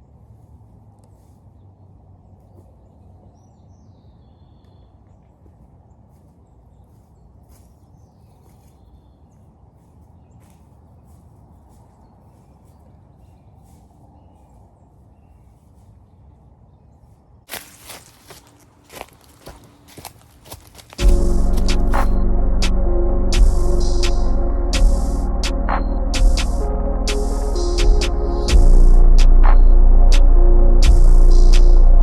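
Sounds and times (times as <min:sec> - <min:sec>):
crunching footsteps: 0:05.0 - 0:29.7
low rumble: 0:21.0 - 0:32.0.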